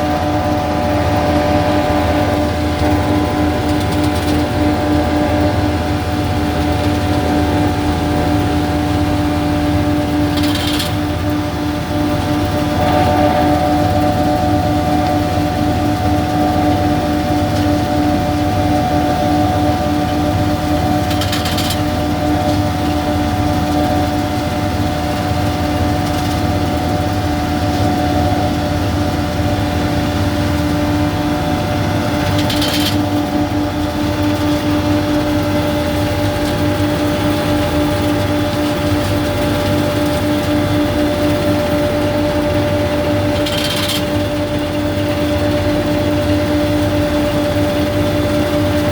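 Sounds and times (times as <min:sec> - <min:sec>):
harvester machinery humming: 0:00.0 - 0:48.8.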